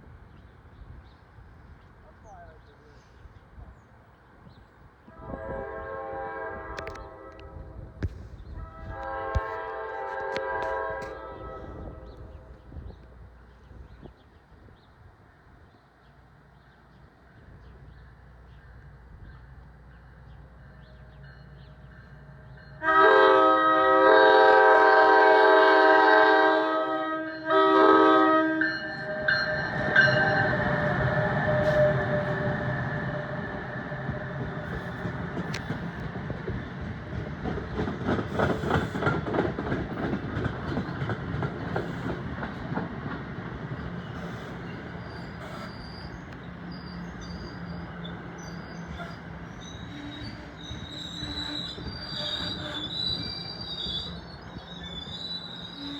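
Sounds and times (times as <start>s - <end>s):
train rumble: 0.0s - 55.9s
train horn blasts: 5.1s - 12.5s, 22.7s - 34.9s, 48.9s - 53.0s
train wheels clattering: 28.9s - 55.9s.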